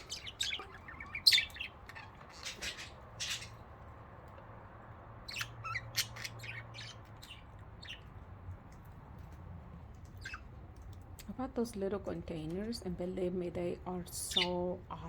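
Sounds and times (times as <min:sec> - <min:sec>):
budgerigars squawking and chirping: 0:00.0 - 0:03.7, 0:05.2 - 0:08.1.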